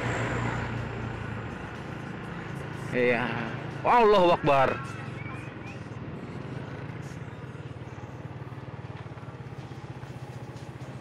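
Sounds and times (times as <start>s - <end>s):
motorcycle engine at low revs: 5.2s - 11.0s.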